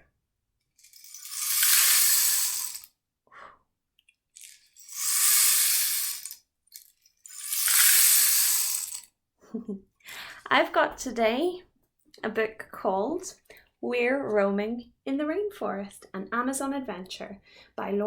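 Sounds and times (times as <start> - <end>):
rain stick trickling: 0.8 - 2.9, 4.4 - 9.0.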